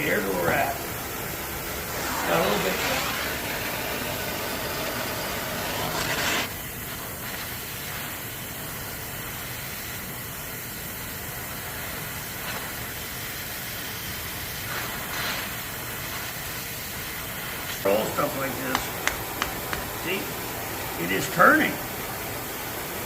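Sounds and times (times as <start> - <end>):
gas torch flame hissing: 0.0 - 23.0.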